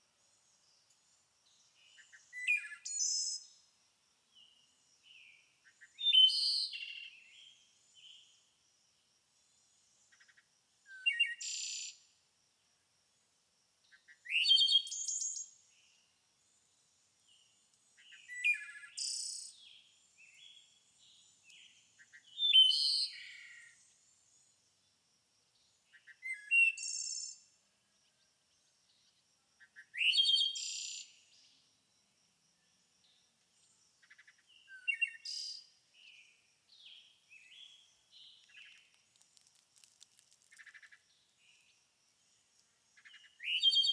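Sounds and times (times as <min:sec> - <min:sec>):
songbird singing: 0:00.1 - 0:08.6, 0:09.4 - 0:12.2, 0:13.8 - 0:43.9
soft bird chirps: 0:00.3 - 0:03.6, 0:17.3 - 0:24.6, 0:33.6 - 0:43.9.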